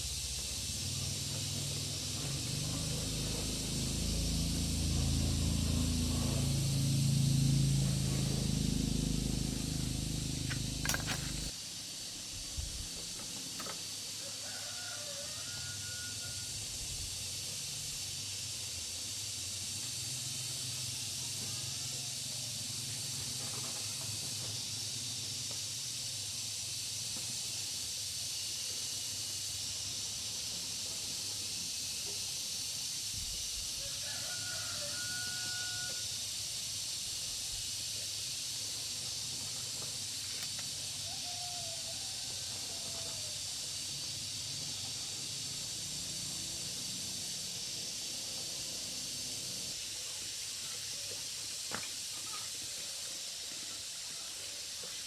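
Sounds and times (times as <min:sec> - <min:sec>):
high-pitched hiss: 0:00.0 - 0:55.0
rooster crowing: 0:02.3 - 0:11.5, 0:14.2 - 0:16.7, 0:33.8 - 0:36.2, 0:40.8 - 0:43.8.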